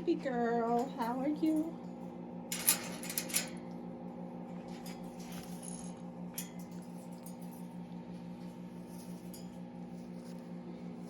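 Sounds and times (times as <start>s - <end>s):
low hum with fast flutter: 0.0s - 11.0s.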